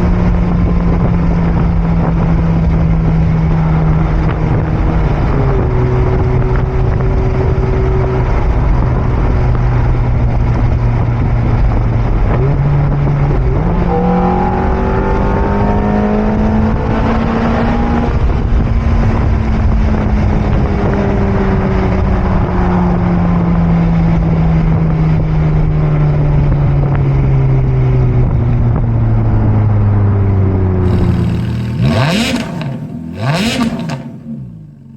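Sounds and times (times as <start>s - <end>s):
sports car engine revving: 0.0s - 22.4s, 30.8s - 34.9s.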